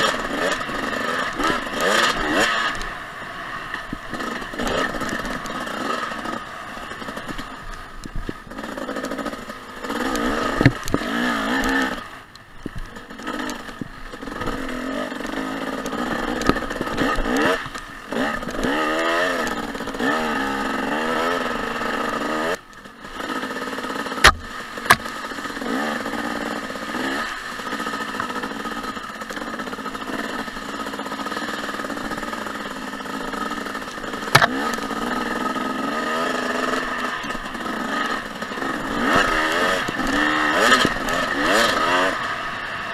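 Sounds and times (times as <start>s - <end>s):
dirt bike engine revving: 0.0s - 42.9s
sharp knocks: 24.2s - 25.1s, 34.3s - 34.6s.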